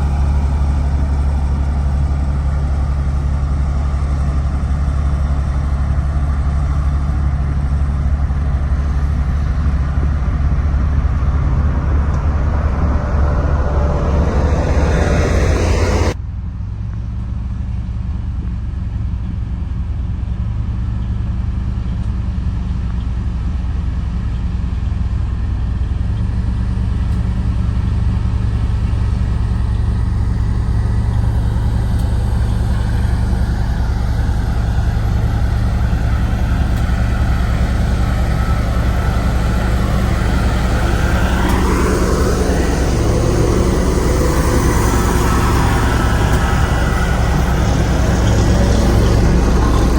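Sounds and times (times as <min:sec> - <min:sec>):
rising tone: 0:00.0 - 0:16.2, 0:27.2 - 0:49.9
road roller diesel engine running: 0:00.0 - 0:16.2, 0:25.9 - 0:49.9.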